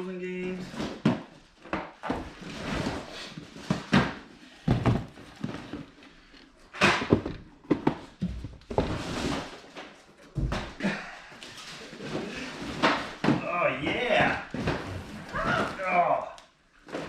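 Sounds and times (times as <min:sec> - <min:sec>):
boxes thumping and knocking: 0:00.6 - 0:06.0, 0:06.7 - 0:11.0, 0:11.8 - 0:16.1
cardboard rustling: 0:02.0 - 0:06.4.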